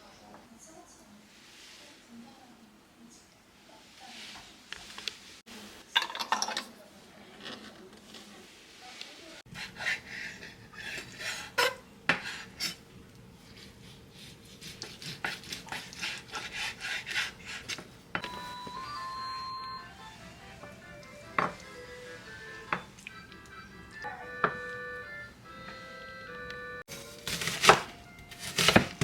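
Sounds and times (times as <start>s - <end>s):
utensils clinking against dishes: 5.9s - 6.8s
light background music: 18.2s - 29.0s.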